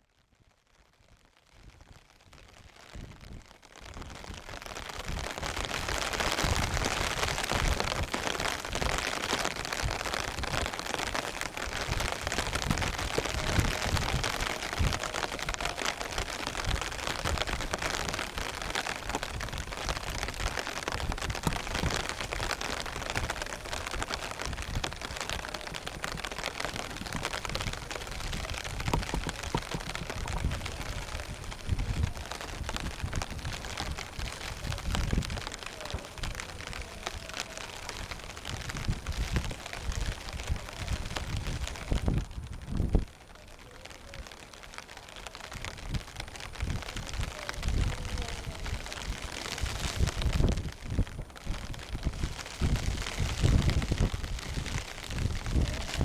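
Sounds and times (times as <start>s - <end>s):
falling rain hiss: 2.5s - 56.0s
wind buffeting microphone: 3.0s - 43.2s, 45.2s - 56.0s.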